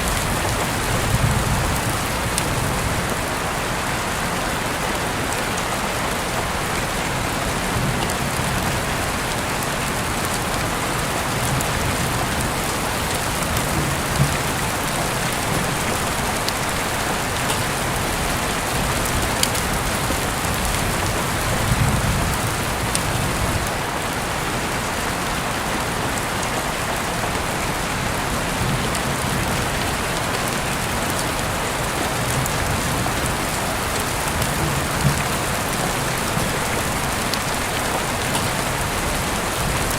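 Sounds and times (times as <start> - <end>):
heavy rain falling: 0.0 - 39.9
rain drop ticks: 7.8 - 23.7, 28.6 - 39.9.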